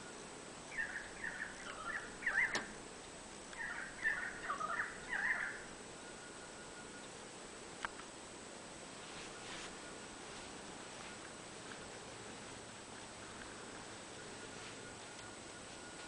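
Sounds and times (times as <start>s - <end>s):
small bird chirping: 0.0s - 2.8s, 3.5s - 7.2s
sharp click: 2.5s - 2.7s.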